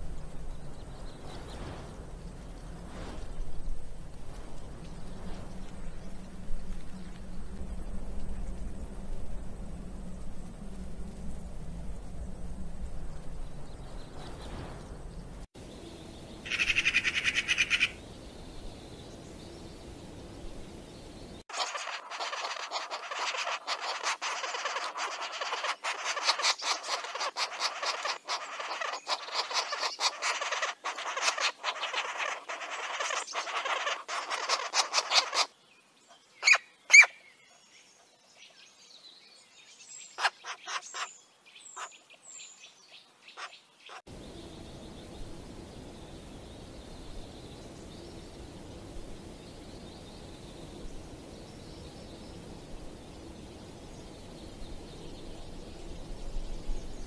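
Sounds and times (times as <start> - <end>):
low background rumble: 0.0 - 21.5, 44.1 - 57.0
dense bird chirps chattering: 15.8 - 19.5, 21.0 - 35.6, 40.0 - 42.2
loud sharp bird calls: 16.2 - 18.0, 21.4 - 35.6, 36.4 - 37.4, 40.0 - 42.6.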